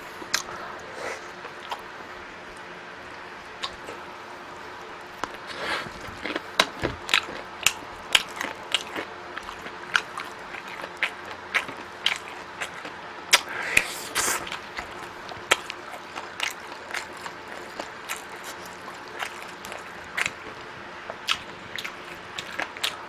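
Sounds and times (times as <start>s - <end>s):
person chewing food: 0.0s - 23.0s
wet mouth clicks: 13.3s - 14.6s.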